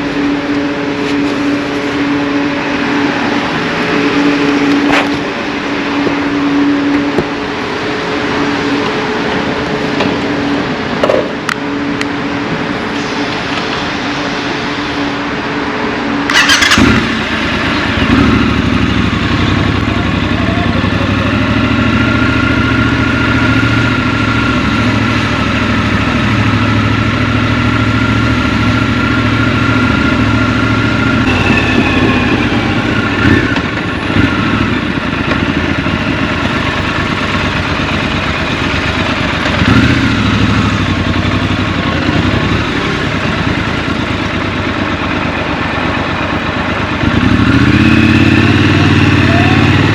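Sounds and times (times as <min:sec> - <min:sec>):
motorcycle engine running: 0:16.3 - 0:49.9.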